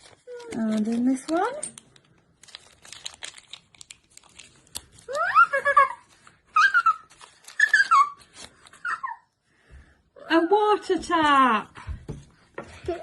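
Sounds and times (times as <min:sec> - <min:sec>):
plastic packet crinkling: 0:00.0 - 0:09.0.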